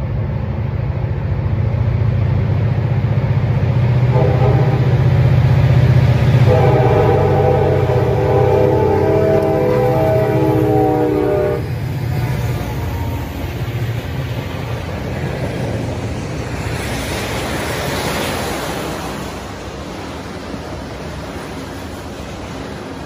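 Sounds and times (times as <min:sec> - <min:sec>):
train cars rolling by: 0:00.0 - 0:23.0
locomotive air horn: 0:04.1 - 0:05.2, 0:06.4 - 0:11.8.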